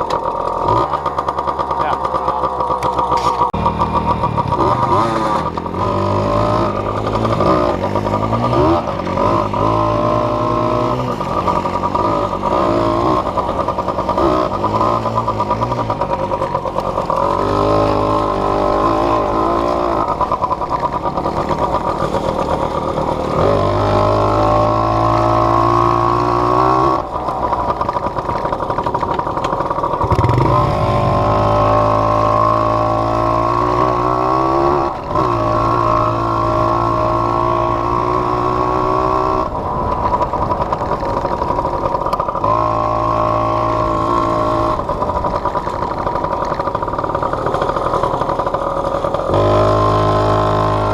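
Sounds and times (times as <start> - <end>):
off-road vehicle engine: 0.0 - 50.9.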